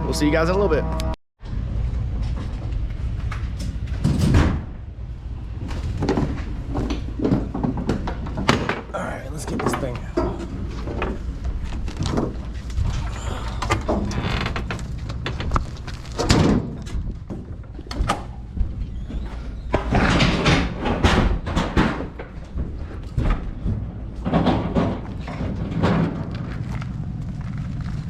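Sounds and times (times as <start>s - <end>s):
steady low hum: 0.0s - 28.0s
gear knocking and clanking: 5.6s - 28.0s.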